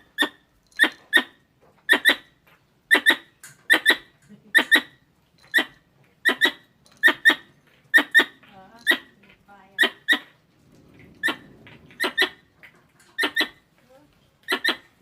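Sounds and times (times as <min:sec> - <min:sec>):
squirrel squeaky chirps: 0:00.2 - 0:02.3, 0:02.9 - 0:09.2, 0:09.8 - 0:10.3, 0:11.2 - 0:12.4, 0:13.2 - 0:13.6, 0:14.4 - 0:15.0.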